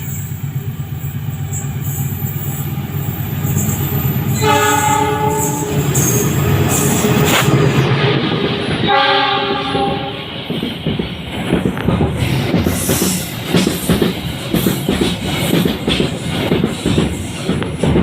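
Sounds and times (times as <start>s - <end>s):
diesel locomotive engine: 0.0s - 18.0s
train horn blast: 4.3s - 6.2s, 8.8s - 10.3s.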